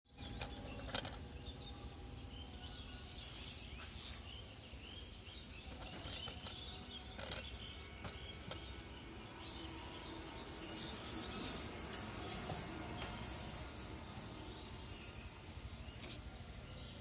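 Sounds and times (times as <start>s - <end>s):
birds chirping: 0.1s - 17.0s.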